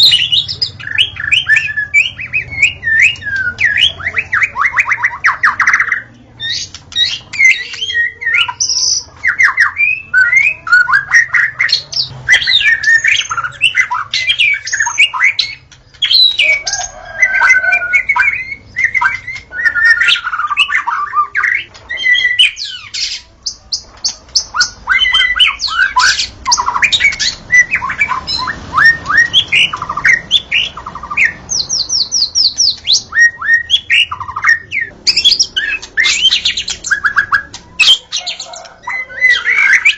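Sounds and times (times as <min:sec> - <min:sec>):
songbird singing whistles and trills: 0:00.0 - 0:39.9.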